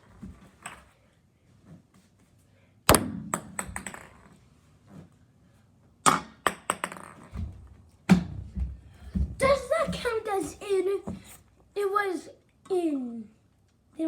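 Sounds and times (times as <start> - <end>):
small ball bouncing on hard surfaces: 2.9 - 4.4, 6.0 - 10.2, 11.0 - 11.3.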